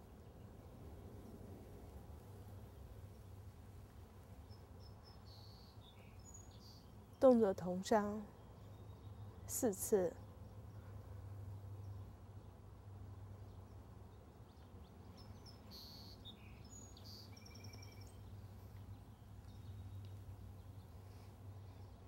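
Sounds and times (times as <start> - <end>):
bird chirps and trills: 14.6 - 18.8.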